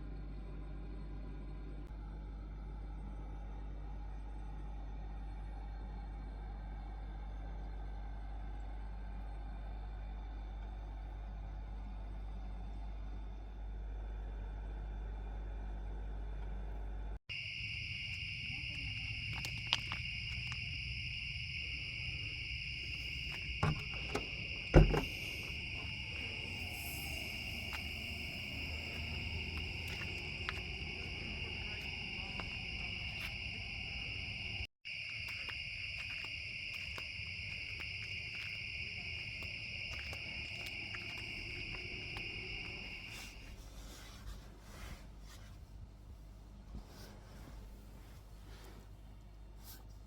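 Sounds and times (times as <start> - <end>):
night insects trilling: 17.3 - 44.2.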